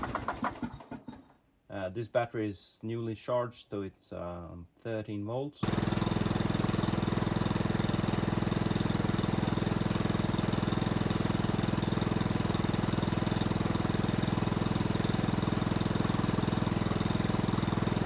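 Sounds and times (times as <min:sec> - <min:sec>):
lawn mower engine running: 0:00.0 - 0:01.3, 0:05.6 - 0:18.0.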